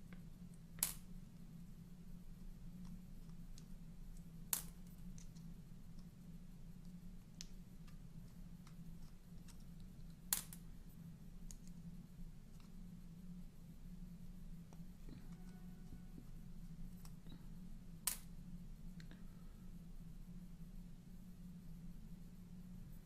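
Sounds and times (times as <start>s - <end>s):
steady low hum: 0.0s - 23.0s
sharp clicks of small parts: 0.8s - 1.1s, 6.8s - 10.6s, 18.0s - 18.3s.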